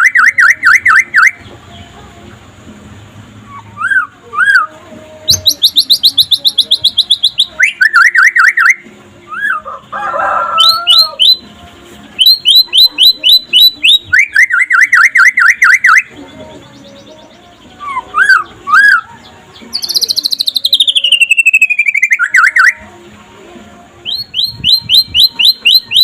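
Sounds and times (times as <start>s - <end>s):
harsh bird call: 0.0s - 1.4s, 3.5s - 4.7s, 5.3s - 11.4s, 17.8s - 22.8s, 24.1s - 26.0s
songbird singing: 0.0s - 26.0s.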